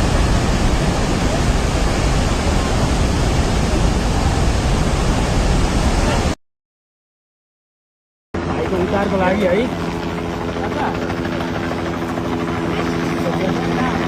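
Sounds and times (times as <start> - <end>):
floodwater rushing: 0.0 - 6.4.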